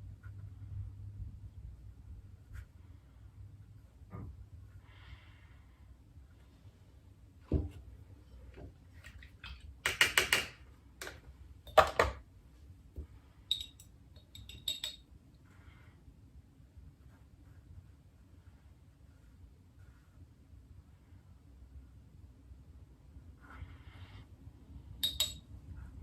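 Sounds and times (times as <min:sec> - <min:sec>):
light clinks of hard objects: 0:13.5 - 0:15.0, 0:25.0 - 0:25.5.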